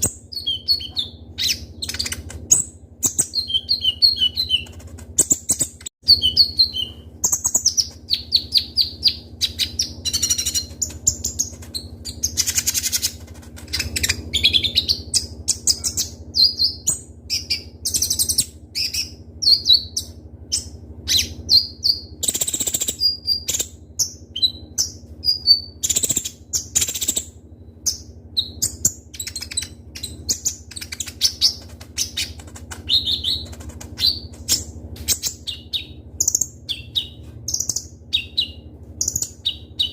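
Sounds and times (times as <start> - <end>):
bird singing high chirps and trills: 0.0 - 39.9
steady low hum: 0.0 - 39.9.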